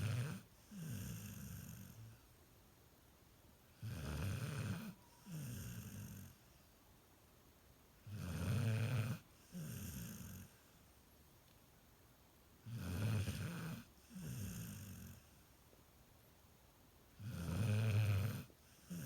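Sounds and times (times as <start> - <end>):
puppy snoring: 0.0 - 2.2, 3.8 - 6.5, 8.0 - 10.7, 12.6 - 15.4, 17.2 - 19.0.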